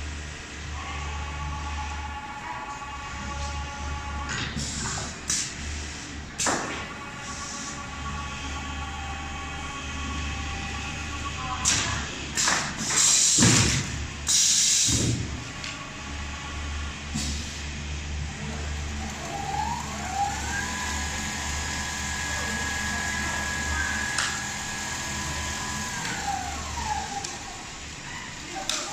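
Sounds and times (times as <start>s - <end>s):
sewing machine motor hum: 18.2s - 28.4s
motor whine spinning up: 18.3s - 28.0s.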